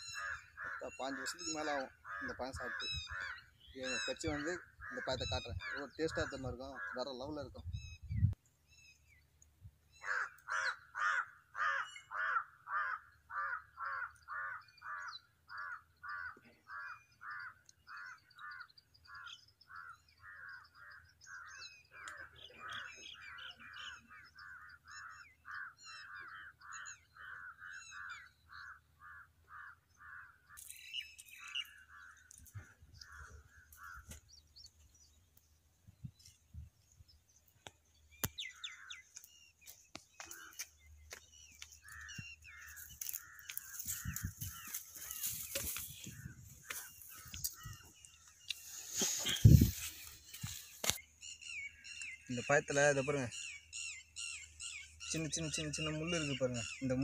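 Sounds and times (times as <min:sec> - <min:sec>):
bird calling repeatedly: 0:00.0 - 0:57.0
small birds chirping: 0:00.0 - 0:57.0
dry brush rustling: 0:42.7 - 0:47.7, 0:48.5 - 0:51.0.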